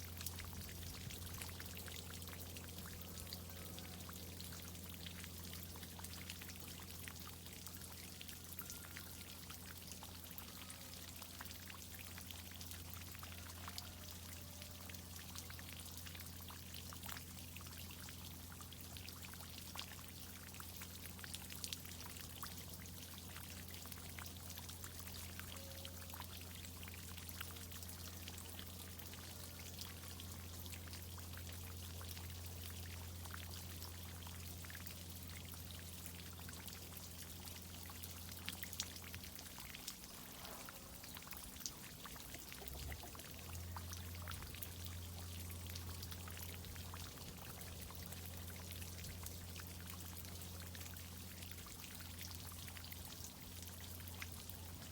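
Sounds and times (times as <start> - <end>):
water drips and splashes: 0.0 - 54.9
water pouring and pattering: 36.6 - 54.9.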